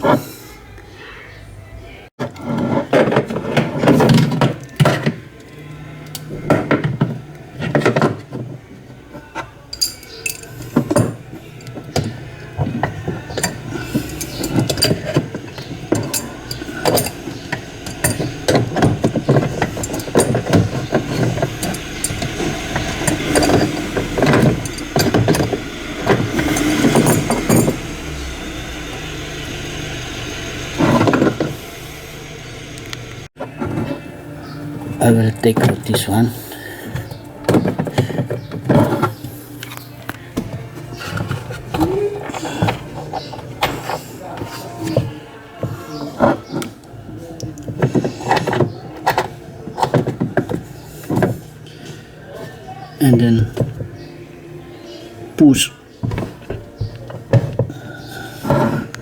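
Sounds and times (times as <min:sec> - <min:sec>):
hand tools clinking on metal: 0:09.3 - 0:32.9.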